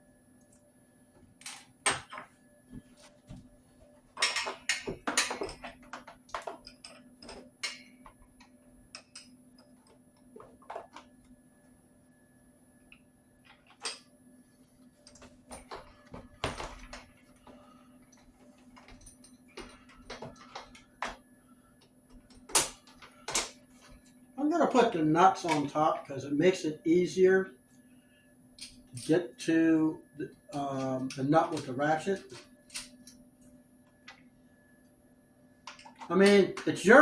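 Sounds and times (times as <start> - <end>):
faint steady hum: 0.0 - 37.0
metal parts clinking and knocking: 4.2 - 8.0.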